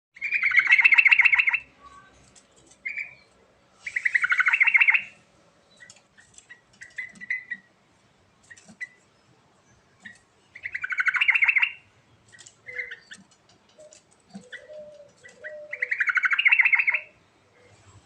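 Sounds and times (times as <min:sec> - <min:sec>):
bird singing bubbling phrases: 0:00.2 - 0:02.0, 0:03.9 - 0:05.2, 0:10.0 - 0:11.9, 0:12.6 - 0:18.0
soft bird chirps: 0:00.2 - 0:07.8, 0:08.4 - 0:18.0.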